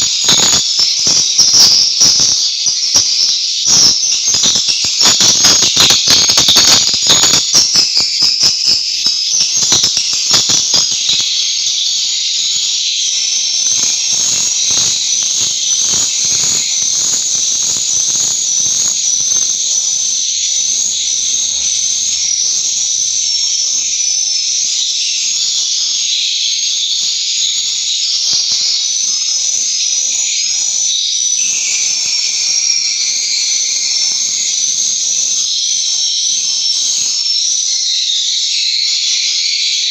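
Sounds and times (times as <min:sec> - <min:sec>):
swiftlets twittering: 0:00.0 - 0:29.8.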